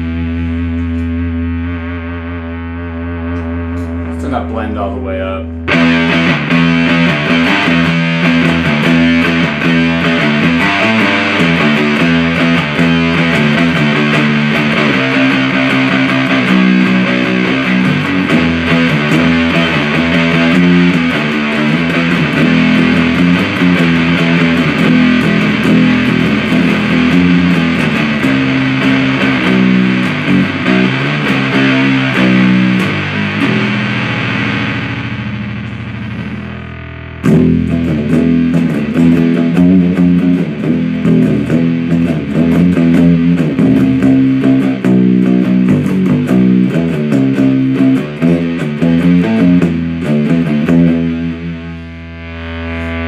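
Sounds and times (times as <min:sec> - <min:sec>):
fuzzed electric guitar riffing: 0:00.0 - 0:53.0.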